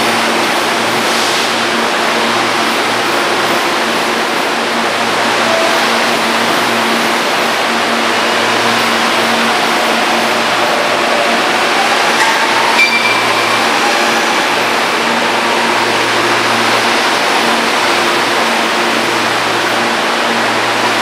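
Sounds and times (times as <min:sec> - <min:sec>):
train rushing: 0:00.0 - 0:21.0
short high beep: 0:12.8 - 0:13.5.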